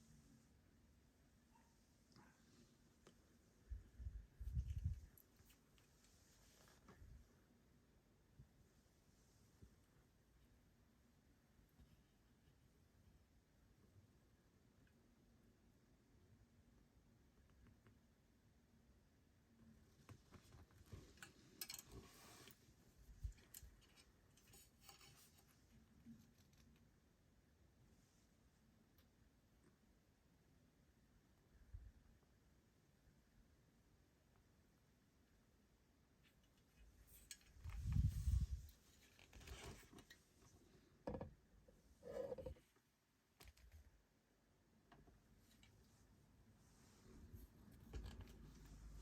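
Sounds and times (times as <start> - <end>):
objects handled with clicks and scrapes: 4.4 - 7.2, 20.1 - 26.9, 36.2 - 42.8, 44.9 - 46.1, 46.7 - 49.0.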